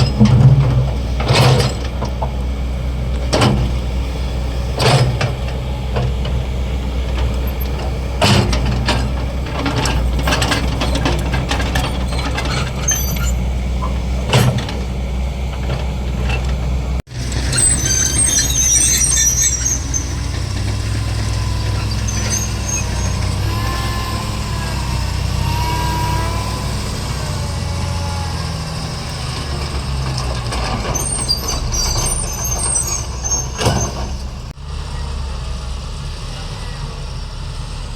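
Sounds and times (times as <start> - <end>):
excavator diesel engine: 0.0 - 37.9
high-pitched metal squeals: 7.4 - 14.0, 17.2 - 35.1.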